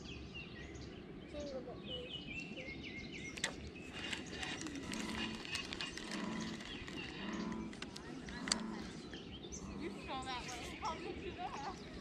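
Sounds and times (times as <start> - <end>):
sharp click: 3.3 - 4.6.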